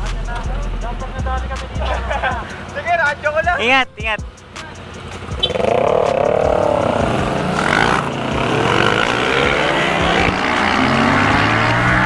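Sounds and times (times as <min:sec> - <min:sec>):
motorcycle engine accelerating: 0:05.0 - 0:12.0.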